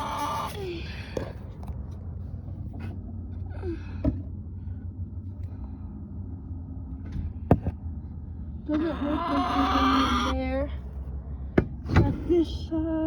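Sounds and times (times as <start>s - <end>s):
hen calls: 0.0s - 0.6s, 8.8s - 10.5s
low steady rumble: 0.0s - 13.0s.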